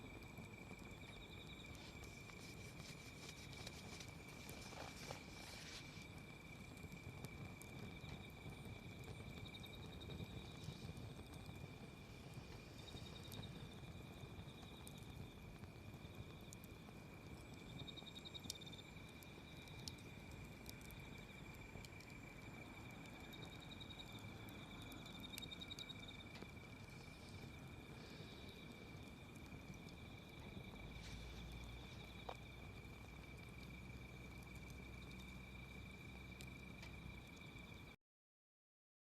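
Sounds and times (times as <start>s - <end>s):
faint insects trilling: 0.0s - 38.0s
wood fire crackling: 0.0s - 38.0s.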